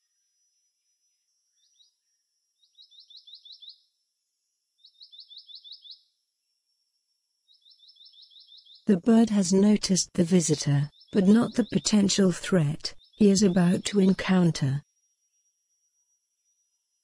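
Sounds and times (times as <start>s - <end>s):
bird singing high-pitched notes: 2.6s - 3.9s, 4.8s - 6.1s, 7.5s - 8.9s.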